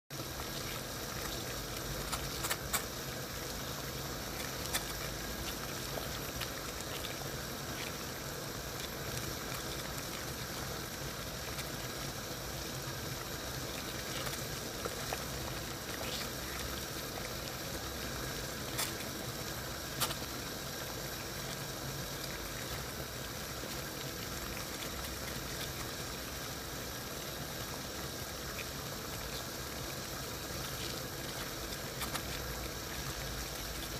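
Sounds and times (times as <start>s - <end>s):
water boiling in a saucepan: 0.1s - 33.9s.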